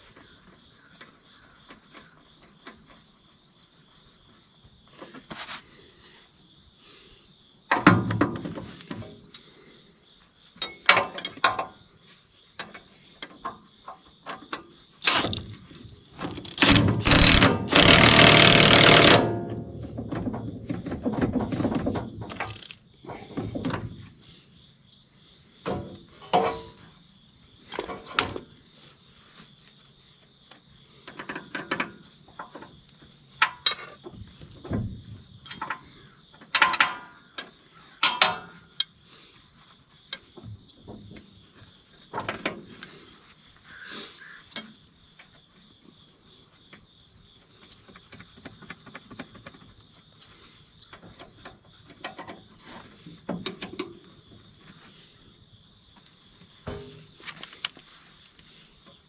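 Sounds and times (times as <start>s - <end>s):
crickets chirping: 0.0s - 59.0s
hand tools clinking on metal: 10.6s - 11.8s, 38.0s - 38.9s.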